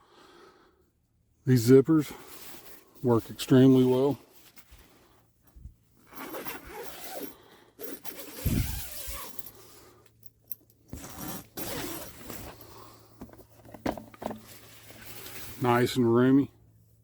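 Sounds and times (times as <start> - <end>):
tent zipper pulled: 6.0 - 9.7, 10.9 - 13.0.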